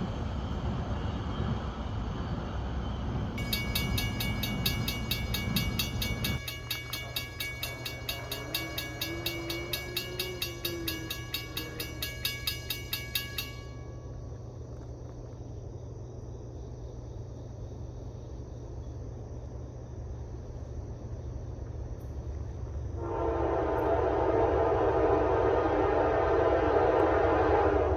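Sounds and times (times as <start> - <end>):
train rumbling: 0.0 - 27.9
railroad crossing bell ringing: 3.4 - 14.3.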